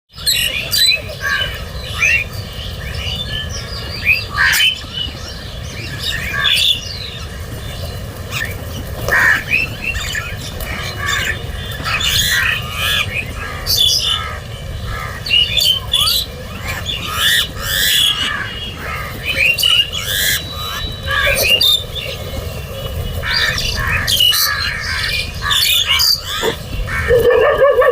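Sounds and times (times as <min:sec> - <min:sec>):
crows cawing: 0:09.1 - 0:09.6, 0:10.7 - 0:15.5, 0:17.0 - 0:21.5, 0:23.2 - 0:27.9.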